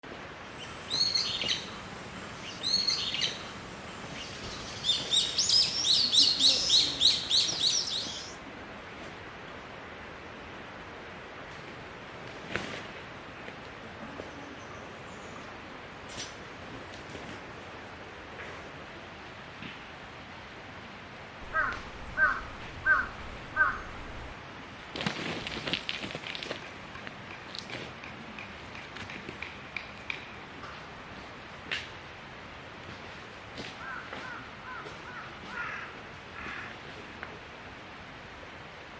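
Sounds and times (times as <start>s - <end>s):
faint outdoor hiss: 0.4s - 8.4s, 21.4s - 24.4s
crow cawing: 21.4s - 24.4s, 33.8s - 36.6s
songbird singing: 21.4s - 24.4s.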